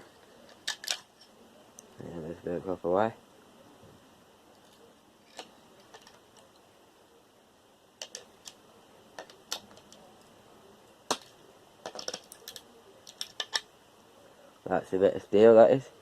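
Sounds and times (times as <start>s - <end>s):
small metal parts clicking: 0.5s - 1.3s, 4.5s - 6.6s, 8.0s - 8.6s, 9.2s - 10.3s, 11.0s - 13.7s.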